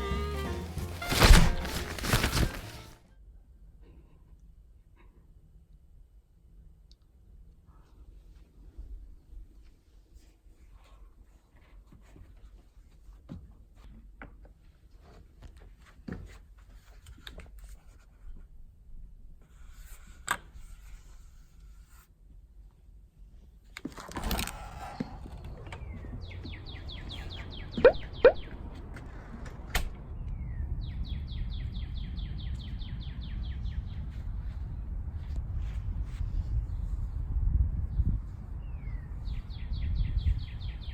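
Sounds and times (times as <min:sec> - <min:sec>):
short noisy rustle: 0:00.4 - 0:03.0
songbird trilling: 0:25.9 - 0:28.8.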